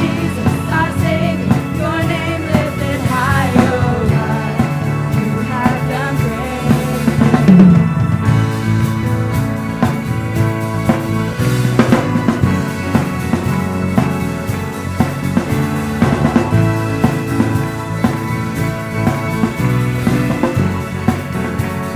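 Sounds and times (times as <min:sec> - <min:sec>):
band playing drums and bass: 0:00.0 - 0:21.9
wavering melodic line: 0:06.3 - 0:09.3.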